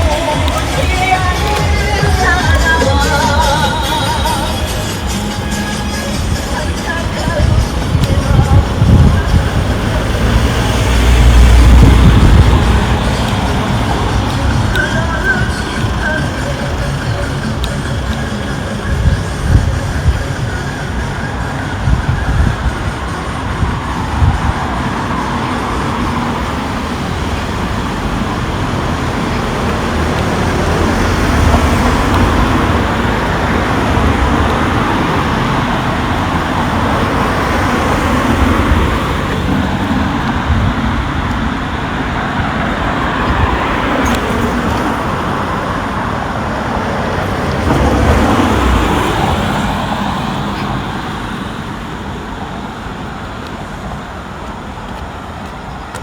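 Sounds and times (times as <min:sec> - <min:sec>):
vehicles passing: 0:00.0 - 0:56.0.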